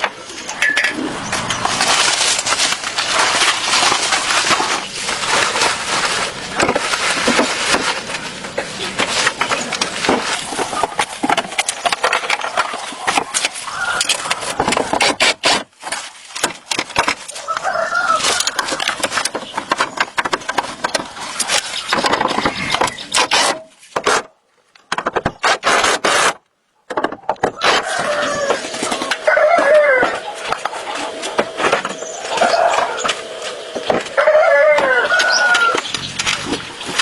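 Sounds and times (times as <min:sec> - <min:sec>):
scraping and rubbing: 0:00.0 - 0:37.0
sharp clicks and knocks: 0:06.6 - 0:17.7, 0:18.3 - 0:29.3.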